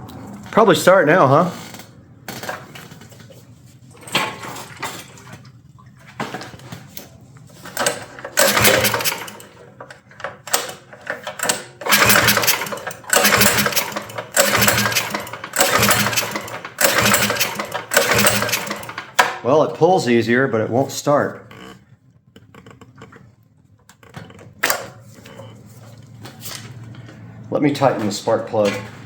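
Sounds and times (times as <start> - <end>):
engine recoil starter pulls: 7.6 - 19.5.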